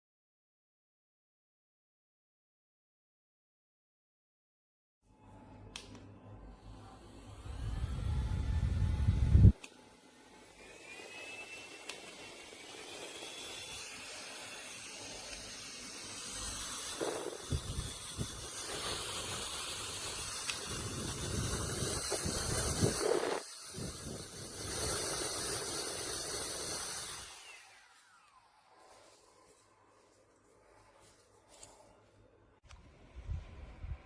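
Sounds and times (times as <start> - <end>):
handheld fan whine: 5.2 - 32.0, 32.6 - 34.0
air rushing and buffeting microphone: 7.4 - 9.6, 17.0 - 19.6, 20.2 - 25.0, 32.9 - 34.0.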